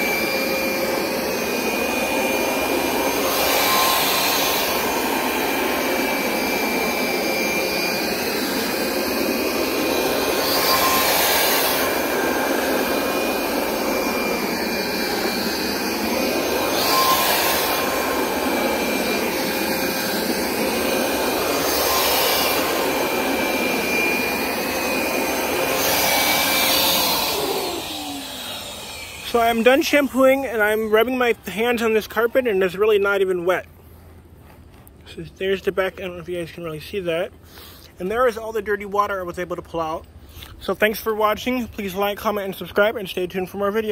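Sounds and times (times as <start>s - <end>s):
carpet cleaner suction motor whine: 0.0s - 33.2s.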